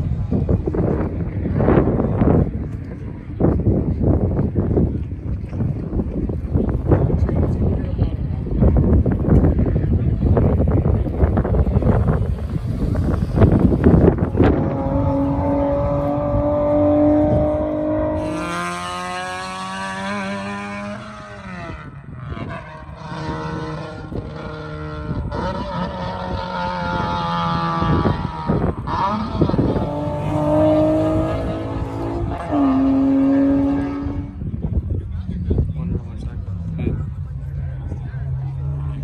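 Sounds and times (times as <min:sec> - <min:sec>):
car engine revving high: 0:11.4 - 0:34.5.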